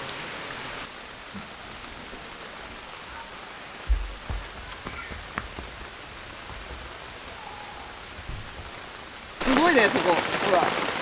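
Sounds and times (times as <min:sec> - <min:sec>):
steady rain falling: 0:00.0 - 0:11.0
dull low thumps: 0:03.8 - 0:07.0, 0:08.1 - 0:08.9.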